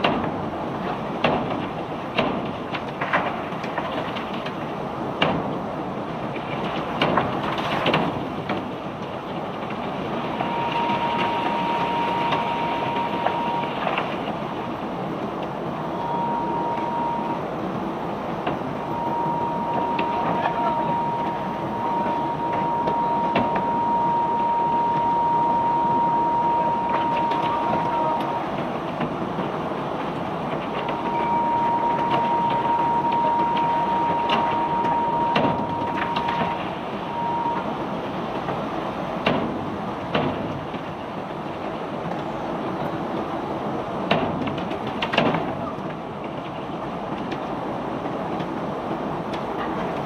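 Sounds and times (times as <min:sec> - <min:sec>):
machinery noise: 0:09.6 - 0:39.2
high whine: 0:10.2 - 0:14.8, 0:15.8 - 0:29.0, 0:30.4 - 0:38.1.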